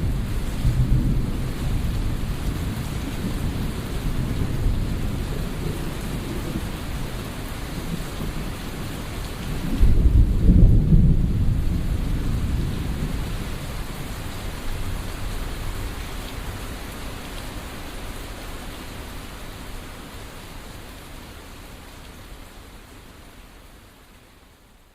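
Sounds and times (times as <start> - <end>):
steady rain: 0.0 - 24.9
thunder rumble: 9.4 - 15.9.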